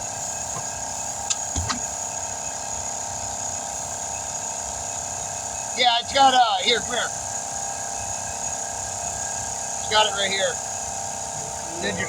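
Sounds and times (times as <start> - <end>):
machine hum: 9.8 - 12.0.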